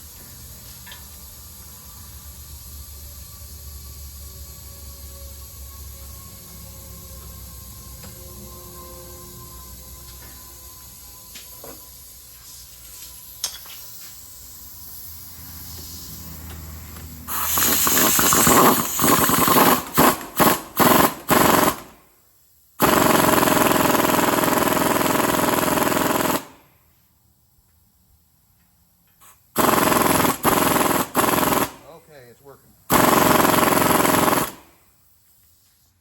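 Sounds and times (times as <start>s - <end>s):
pneumatic air tool hammering: 11.3s - 22.1s, 22.8s - 26.7s, 29.1s - 32.0s, 32.9s - 35.9s.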